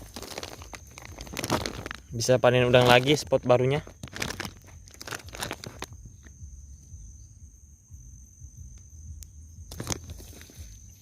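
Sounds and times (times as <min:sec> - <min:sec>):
high insect drone: 0:00.0 - 0:11.0
irregular crinkling clicks: 0:03.9 - 0:06.3.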